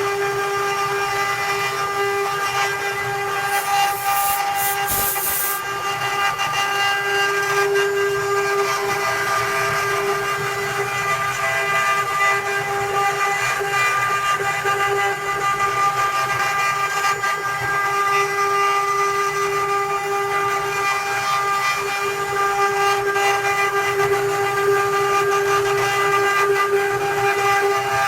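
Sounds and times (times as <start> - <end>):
router spindle whine: 3.4 - 5.7.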